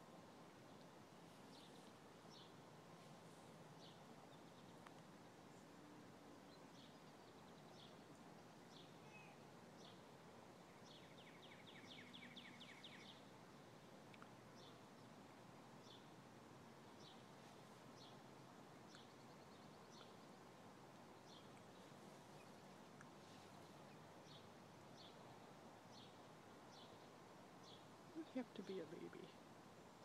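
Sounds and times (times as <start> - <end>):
background hiss: 0.0 - 30.0.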